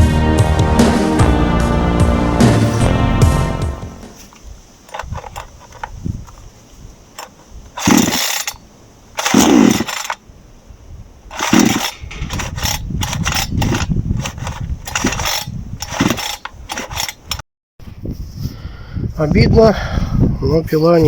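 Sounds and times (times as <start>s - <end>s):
engine turning over: 4.2s - 6.4s, 7.1s - 10.2s, 11.3s - 17.4s
chainsaw starter cord pulled: 4.2s - 6.5s, 7.1s - 10.2s, 11.3s - 17.4s.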